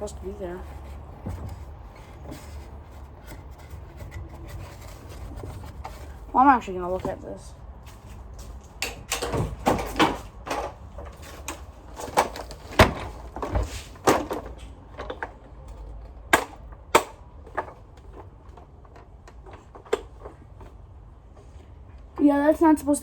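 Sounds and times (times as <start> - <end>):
vacuum parts clicking and knocking: 0.0 - 7.4, 8.4 - 20.9.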